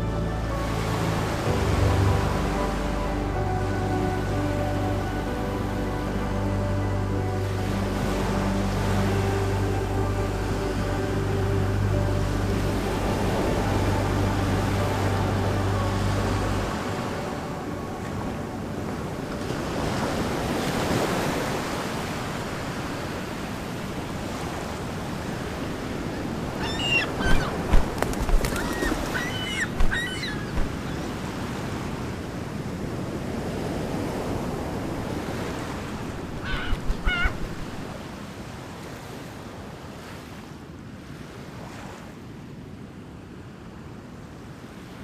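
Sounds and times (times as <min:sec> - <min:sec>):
surf washing onto beach: 0:07.2 - 0:40.4
short bird calls: 0:28.5 - 0:31.1, 0:36.4 - 0:37.4.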